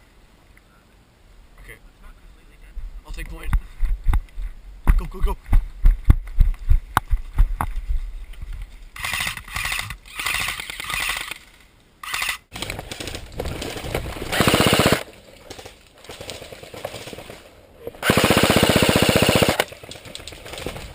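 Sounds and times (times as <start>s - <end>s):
airsoft guns firing bursts: 13.7s - 15.0s, 18.0s - 20.8s.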